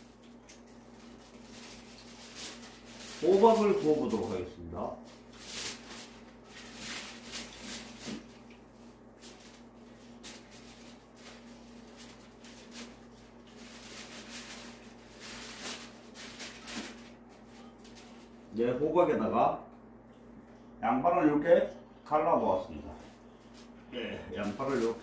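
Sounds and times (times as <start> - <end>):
rustling and handling noises: 0.0 - 18.5, 22.8 - 25.0
faint steady hum: 0.0 - 25.0.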